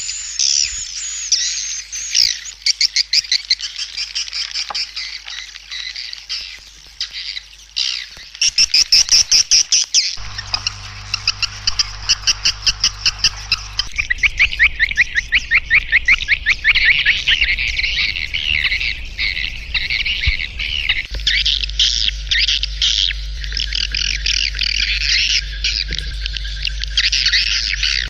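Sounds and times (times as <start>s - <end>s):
swiftlet twittering chirps: 8.4s - 21.1s
steady low hum: 10.2s - 28.0s.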